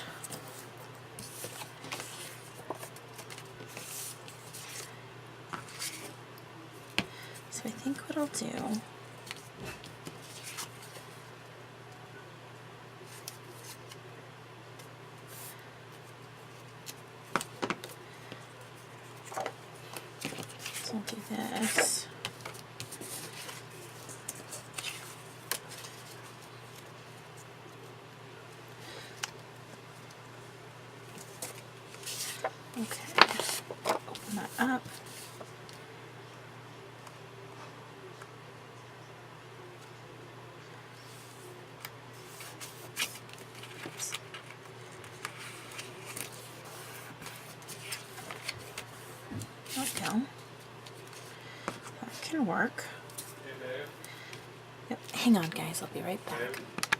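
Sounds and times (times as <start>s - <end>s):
low electrical hum: 0.0s - 56.9s
paper rustling and sliding: 31.2s - 34.3s.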